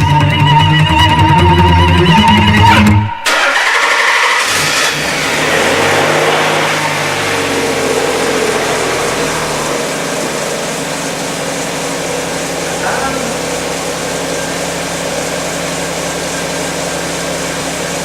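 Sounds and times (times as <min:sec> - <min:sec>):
starter motor cranking: 0:03.3 - 0:16.0
car engine revving and idling: 0:03.3 - 0:18.0.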